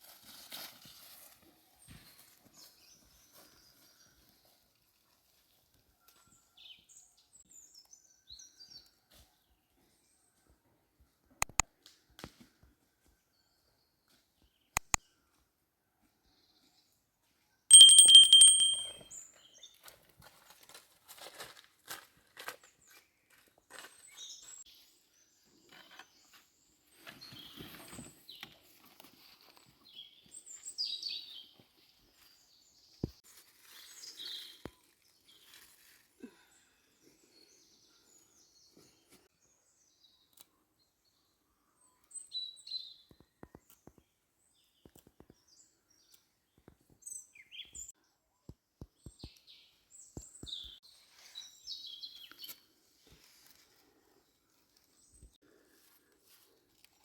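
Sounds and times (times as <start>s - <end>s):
sharp clicks and knocks: 11.4s - 11.6s.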